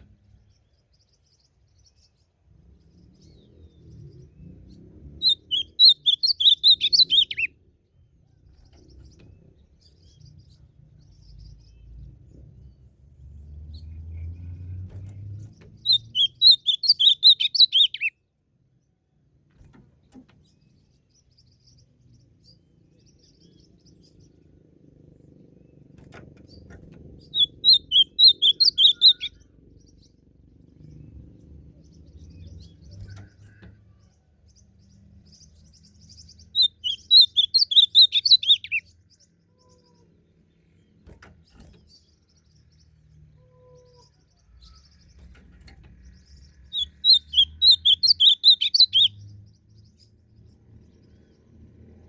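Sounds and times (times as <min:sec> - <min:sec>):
bird warbling song: 0:00.0 - 0:52.0.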